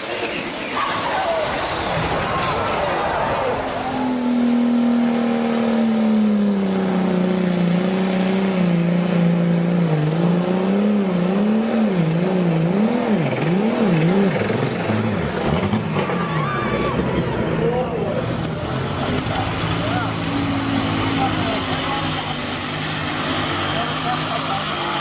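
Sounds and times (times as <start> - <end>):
tractor engine running under load: 14.2 - 25.0.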